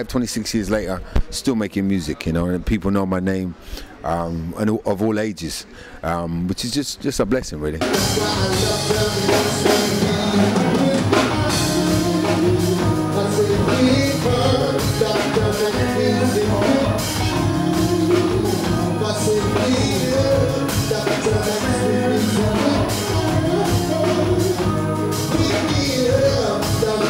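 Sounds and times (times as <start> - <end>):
drum kit: 7.8 - 27.0
live band music: 7.8 - 27.0
person singing: 7.8 - 27.0.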